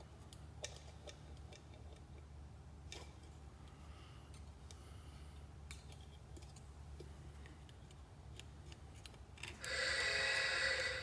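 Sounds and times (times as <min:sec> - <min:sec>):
mobile phone ringtone: 0:09.7 - 0:11.0.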